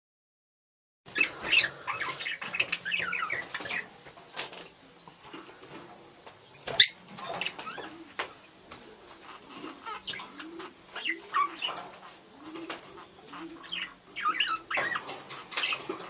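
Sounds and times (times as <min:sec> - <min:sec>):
budgerigars chattering and warbling: 0:01.1 - 0:03.9, 0:06.6 - 0:08.0, 0:09.1 - 0:16.0.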